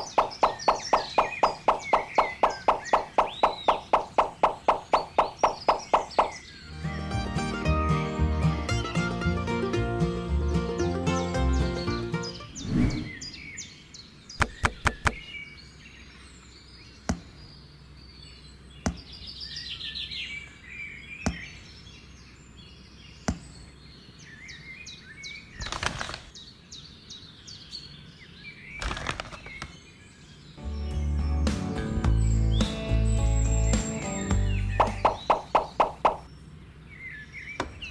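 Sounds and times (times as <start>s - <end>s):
sharp wooden taps: 0.0s - 6.4s, 14.4s - 15.2s, 34.8s - 36.3s
birds chirping: 0.0s - 37.9s
brief swishes: 12.6s - 13.3s.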